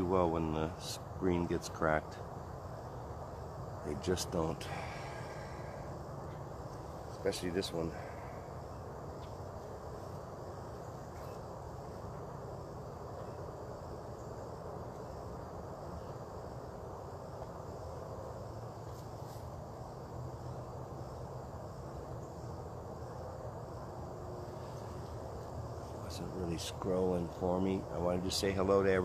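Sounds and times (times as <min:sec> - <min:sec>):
insect chorus trilling: 0:00.0 - 0:29.0.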